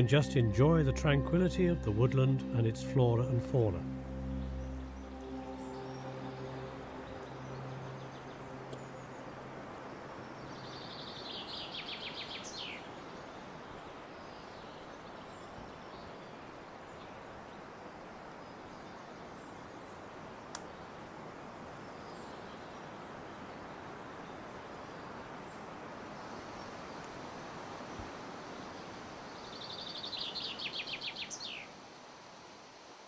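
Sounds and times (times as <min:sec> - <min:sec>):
bird singing: 0:00.0 - 0:13.5, 0:29.4 - 0:31.7
steady outdoor hiss: 0:00.0 - 0:33.0.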